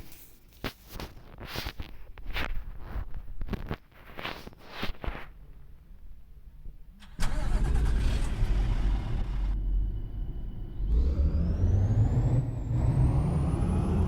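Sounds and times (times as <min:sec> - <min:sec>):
diesel truck engine idling: 0:07.1 - 0:11.8.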